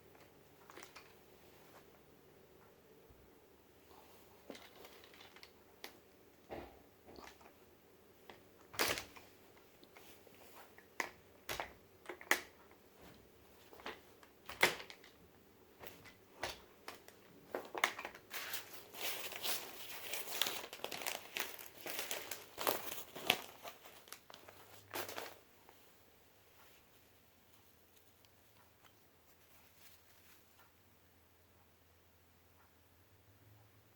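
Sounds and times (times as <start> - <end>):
crinkling and rustling: 0.0 - 2.1, 3.8 - 30.8.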